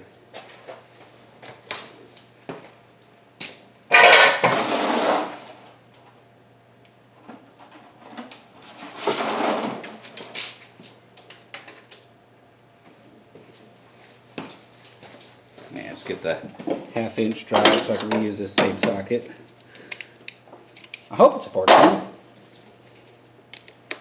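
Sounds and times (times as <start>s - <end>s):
metal tools clinking in toolbox: 3.9s - 5.5s.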